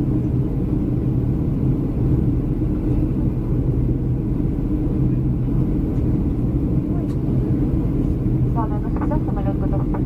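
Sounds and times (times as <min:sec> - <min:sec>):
airliner cabin engine rumble: 0:00.0 - 0:10.0
constant hum: 0:00.0 - 0:10.0.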